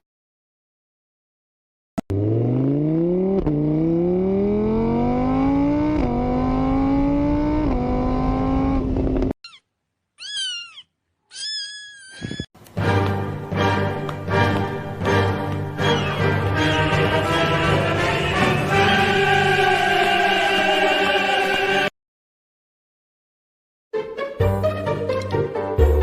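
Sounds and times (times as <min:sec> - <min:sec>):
car engine accelerating through gears: 0:02.0 - 0:09.3
cat meowing: 0:09.4 - 0:12.4.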